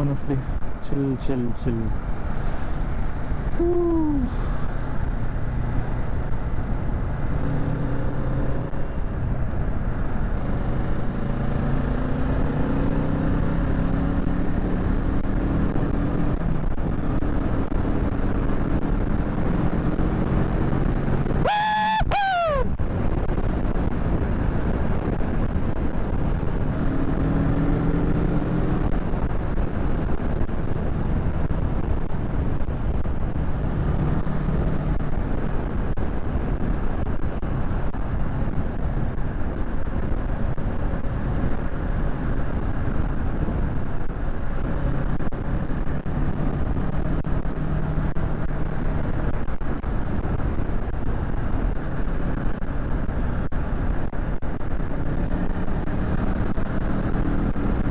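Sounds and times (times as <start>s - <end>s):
wind rush on microphone: 14.2s - 57.9s.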